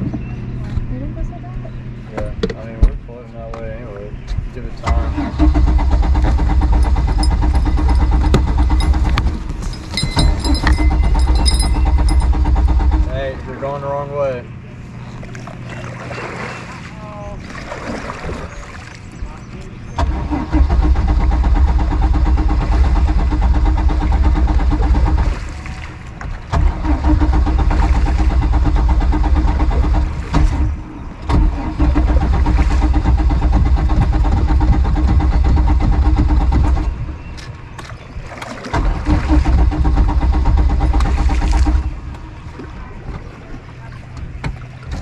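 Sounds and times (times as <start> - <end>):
boat engine starter cranking: 4.8 - 13.3, 20.0 - 25.4, 26.5 - 37.5, 38.4 - 42.3.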